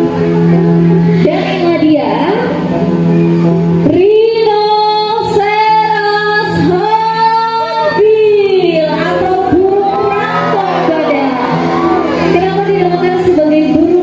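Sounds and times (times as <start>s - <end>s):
backing music: 0.0s - 14.0s
woman singing: 3.9s - 11.3s.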